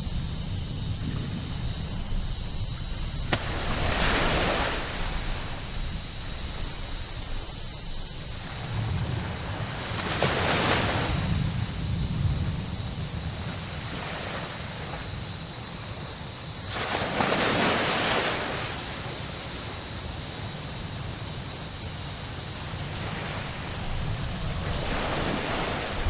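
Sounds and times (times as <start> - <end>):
surf hissing: 0.0 - 26.0
wave breaking: 3.1 - 7.6, 8.3 - 11.9, 24.2 - 26.0.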